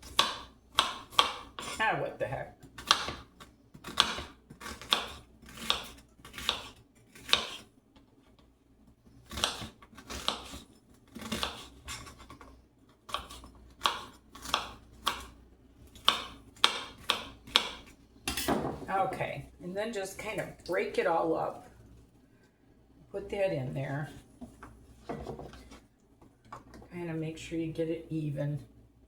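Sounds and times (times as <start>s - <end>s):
knife chopping onion on board: 0.0s - 1.9s, 2.6s - 7.7s, 9.3s - 12.3s, 13.1s - 15.3s, 16.0s - 18.6s.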